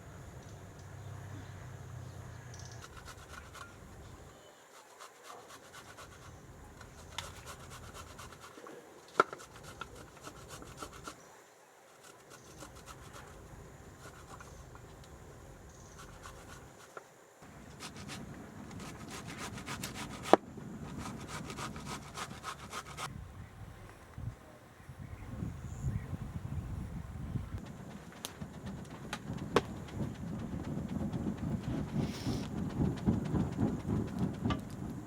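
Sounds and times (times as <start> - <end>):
scratching and rubbing: 2.6 - 11.2, 11.9 - 15.0, 15.8 - 23.1, 27.6 - 34.7.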